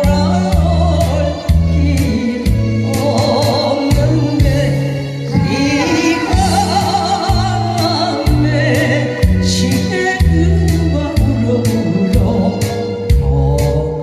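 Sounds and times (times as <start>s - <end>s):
bass line: 0.0s - 14.0s
person singing with vibrato: 0.0s - 14.0s
drum beat: 5.3s - 8.4s.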